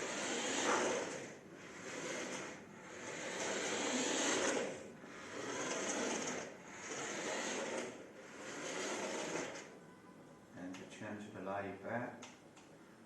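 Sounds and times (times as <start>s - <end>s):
toy truck motor whirring: 0.0s - 9.7s.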